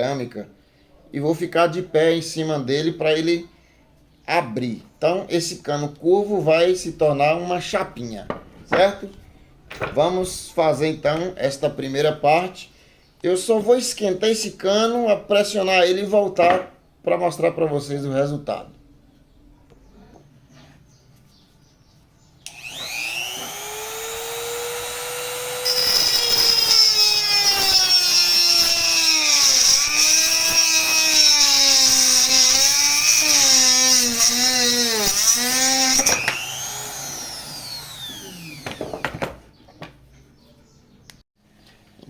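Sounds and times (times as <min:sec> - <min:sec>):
rotary tool saw cutting pipe: 0:22.5 - 0:39.0.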